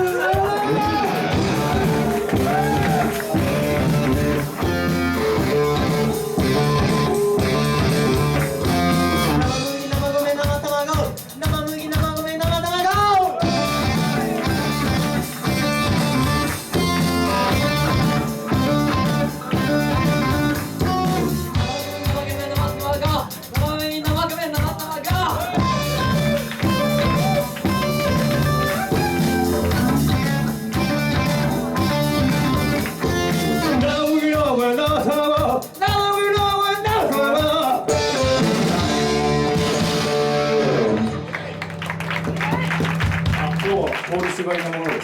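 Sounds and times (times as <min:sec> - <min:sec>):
drum kit beat: 0:00.0 - 0:41.3, 0:42.0 - 0:43.9
guitar: 0:00.0 - 0:43.8
lead vocal line: 0:00.2 - 0:10.9, 0:13.2 - 0:23.0.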